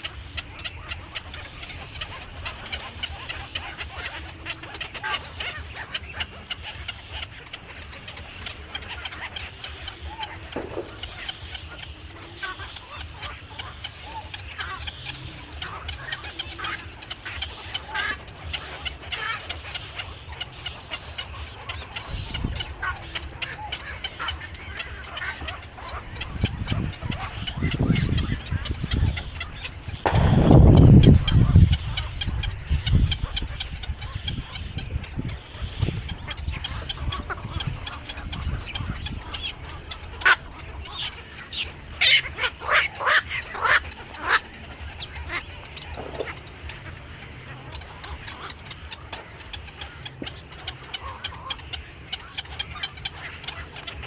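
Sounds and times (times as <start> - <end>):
many birds chirping: 0.0 - 54.0
steady low rumble: 5.7 - 12.6, 14.6 - 42.4
low rumble: 29.9 - 33.3.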